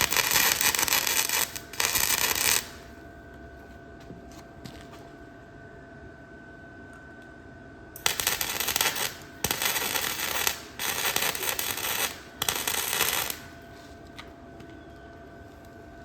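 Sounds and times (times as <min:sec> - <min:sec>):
arc welder crackling: 0:00.0 - 0:03.1, 0:08.0 - 0:14.3.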